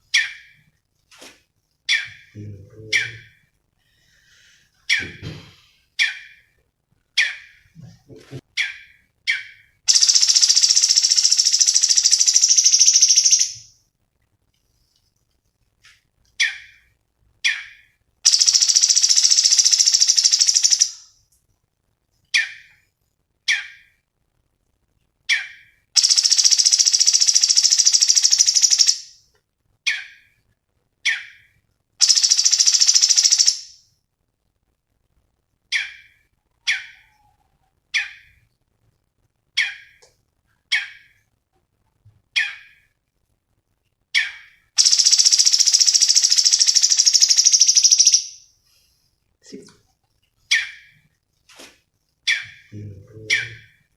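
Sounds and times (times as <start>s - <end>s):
bird chirps: 0.0s - 0.7s, 1.8s - 3.5s, 6.0s - 7.9s, 8.5s - 13.7s, 16.4s - 21.1s, 22.3s - 22.8s, 25.3s - 29.2s, 31.0s - 33.8s, 35.7s - 38.5s, 44.2s - 48.5s, 50.4s - 51.1s, 52.3s - 53.9s
high bird trills: 8.6s - 13.7s, 17.4s - 21.0s, 25.3s - 29.1s, 32.0s - 33.8s, 44.2s - 48.4s.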